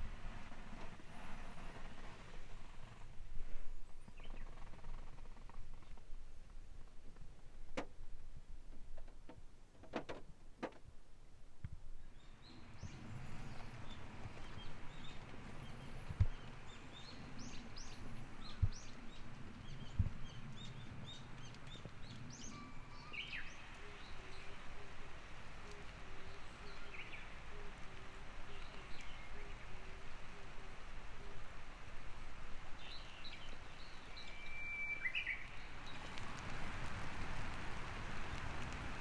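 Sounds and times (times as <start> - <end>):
steady outdoor hum: 35.4 - 39.0.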